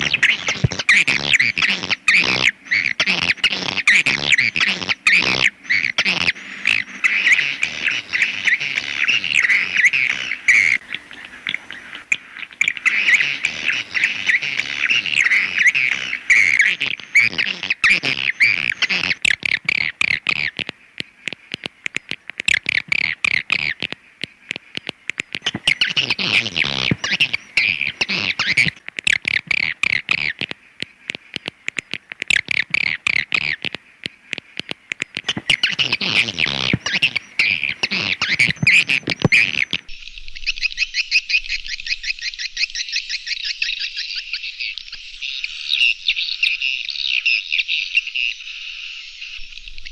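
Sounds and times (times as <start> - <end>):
swiftlets twittering: 0.0 - 40.0.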